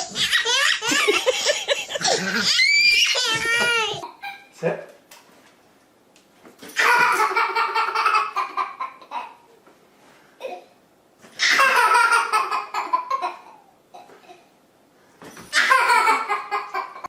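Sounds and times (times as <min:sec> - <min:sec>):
high-pitched pulsing laughter: 0:00.0 - 0:04.4.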